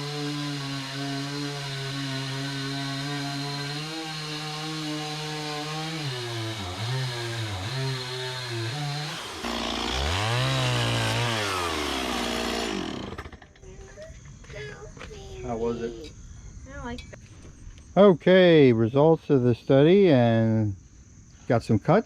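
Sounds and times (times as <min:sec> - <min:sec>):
chainsaw cutting log: 0:00.0 - 0:13.6.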